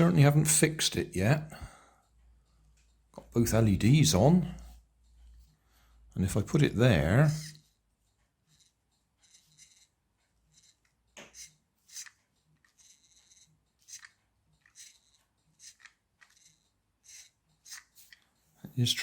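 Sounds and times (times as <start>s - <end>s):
plastic toy car clicks and scrapes: 8.5s - 18.3s.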